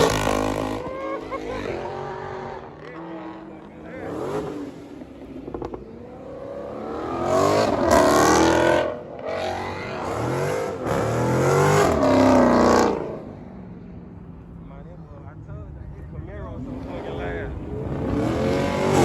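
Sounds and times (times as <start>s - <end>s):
car engine revving hard: 0.0s - 5.0s, 6.3s - 13.3s, 16.6s - 19.0s.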